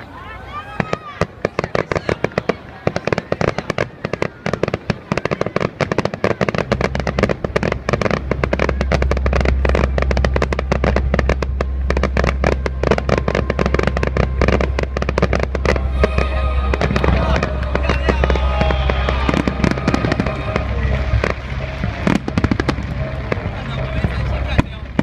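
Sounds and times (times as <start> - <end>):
fireworks crackling: 0.8 - 25.0
deep low rumble: 6.7 - 25.0.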